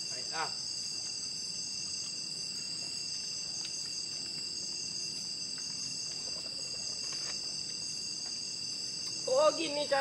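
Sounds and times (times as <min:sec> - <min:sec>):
crickets and insects trilling: 0:00.0 - 0:10.0.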